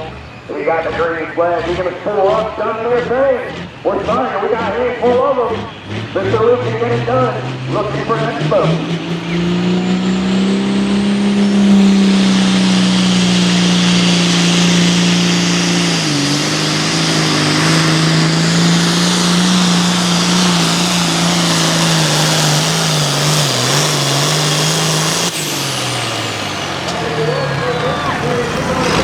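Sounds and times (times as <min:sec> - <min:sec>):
tractor engine at full throttle: 0:00.0 - 0:29.0.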